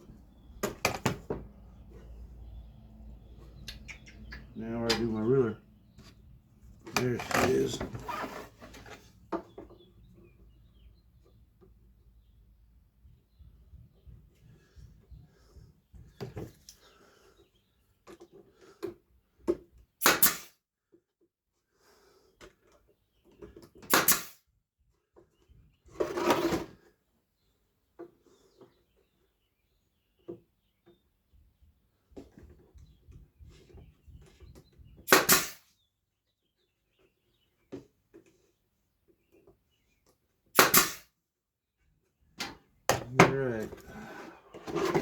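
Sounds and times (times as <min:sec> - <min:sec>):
short scraping sounds: 0:07.1 - 0:09.0, 0:43.5 - 0:45.0
wood and tools knocking on workbench: 0:42.9 - 0:43.4.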